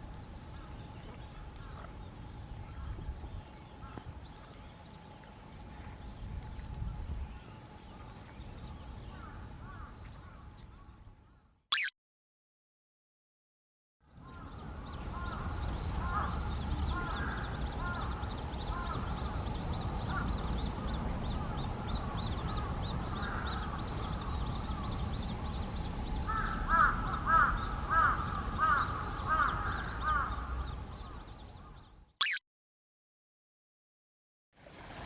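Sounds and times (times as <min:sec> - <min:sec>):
crows cawing: 0:26.3 - 0:30.4.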